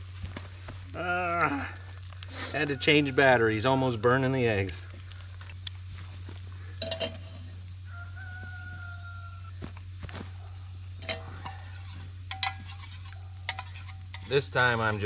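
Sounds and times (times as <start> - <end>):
insect chorus: 0.0 - 15.0
distant rooster crowing: 2.3 - 4.0, 7.7 - 11.8.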